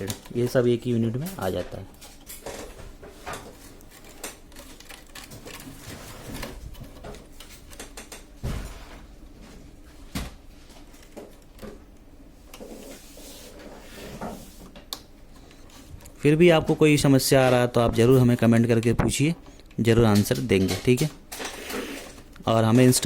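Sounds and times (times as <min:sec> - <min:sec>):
plastic parts clicking and knocking: 0:01.4 - 0:08.4.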